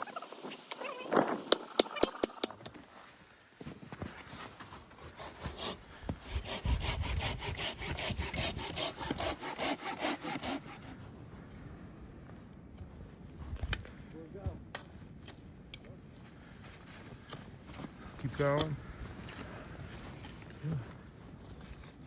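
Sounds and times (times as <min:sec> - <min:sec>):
wind buffeting microphone: 0:06.0 - 0:09.2.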